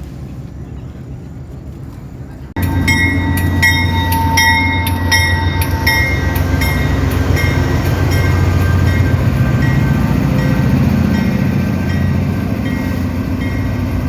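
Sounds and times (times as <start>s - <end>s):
freight train rumbling: 0.0s - 14.0s
train wheels clicking: 2.6s - 14.0s.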